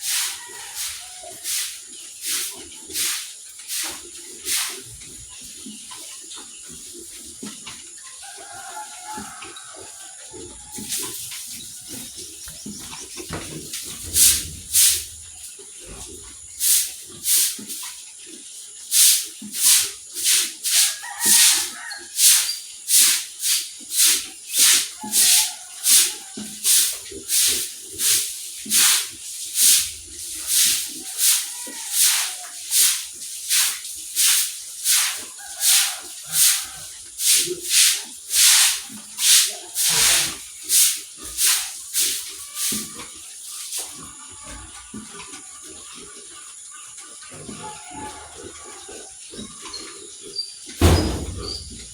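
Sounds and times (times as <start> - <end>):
stiff brush scrubbing: 0.0 - 4.8, 19.6 - 44.1.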